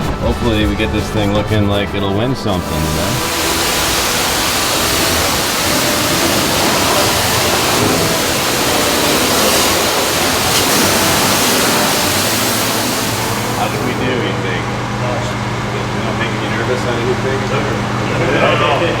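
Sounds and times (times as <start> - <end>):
pressure washer spraying water: 0.0 - 14.3.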